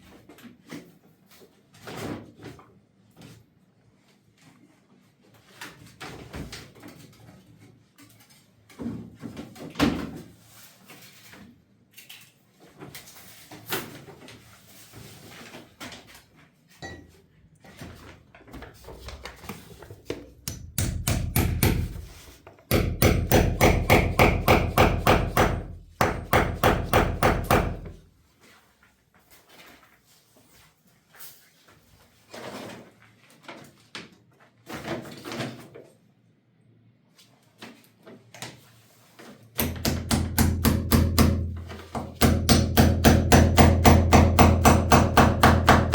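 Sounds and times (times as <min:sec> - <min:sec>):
hammering: 0:20.1 - 0:28.0, 0:39.6 - 0:45.9.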